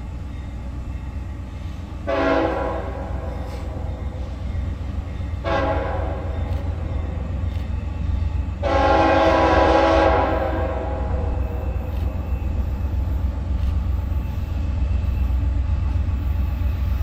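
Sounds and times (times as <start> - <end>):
passing train rumble: 0.0 - 17.0
locomotive air horn blasts: 2.0 - 4.1, 5.4 - 6.5, 8.6 - 11.4.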